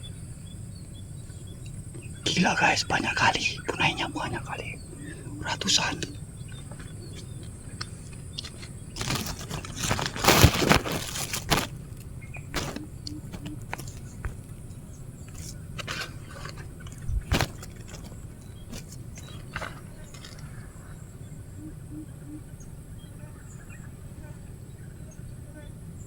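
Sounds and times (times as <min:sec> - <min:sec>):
rustling handling noise: 0:01.6 - 0:20.8.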